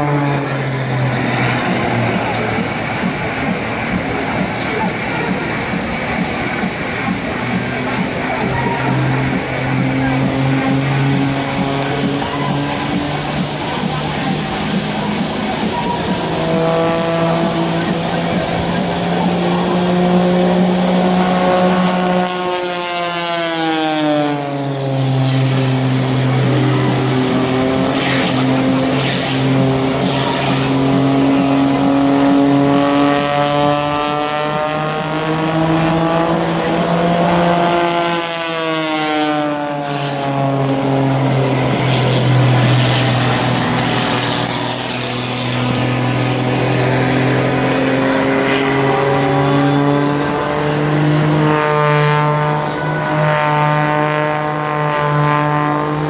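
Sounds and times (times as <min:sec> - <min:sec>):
propeller airplane droning: 0:00.0 - 0:56.0.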